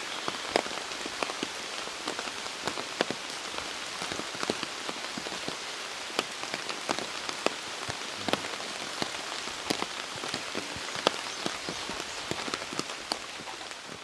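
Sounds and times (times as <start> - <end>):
raindrops tapping: 0.0 - 14.0
steady rain falling: 0.0 - 14.0.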